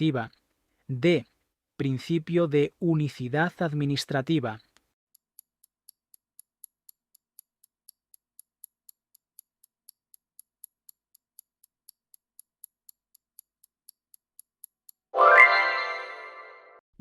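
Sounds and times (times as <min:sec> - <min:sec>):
high-pitched clock ticks: 0:04.6 - 0:15.1.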